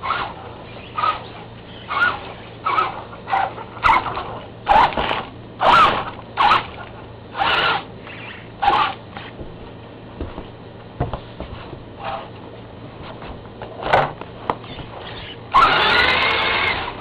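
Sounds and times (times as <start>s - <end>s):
rc truck motor bursts: 0.9s - 4.1s, 4.7s - 6.7s, 7.3s - 9.0s, 15.0s - 17.0s.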